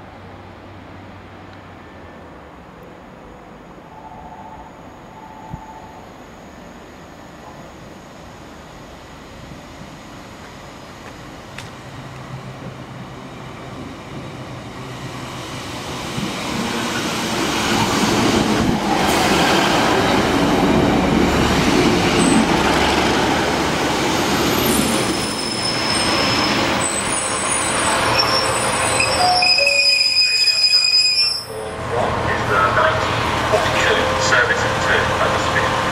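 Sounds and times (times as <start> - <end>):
diesel train passing: 0.0 - 35.9
brake and wheel squeals: 25.2 - 31.7.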